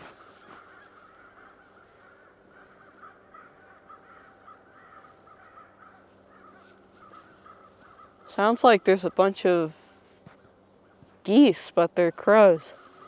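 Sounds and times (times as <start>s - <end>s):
crows cawing: 0.0s - 8.8s, 10.5s - 11.2s, 12.7s - 13.0s.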